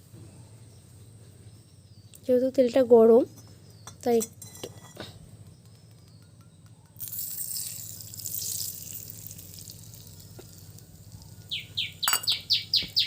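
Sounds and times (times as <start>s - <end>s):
bird chirping: 0.0s - 4.2s, 4.8s - 13.0s
hot oil sizzling: 7.0s - 12.2s.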